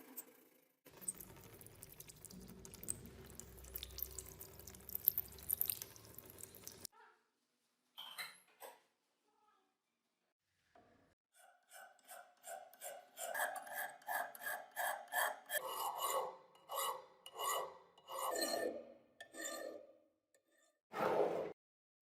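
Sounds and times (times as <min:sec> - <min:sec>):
abrasive rasping on metal: 0:11.4 - 0:20.8
short loud scrape: 0:20.9 - 0:21.6.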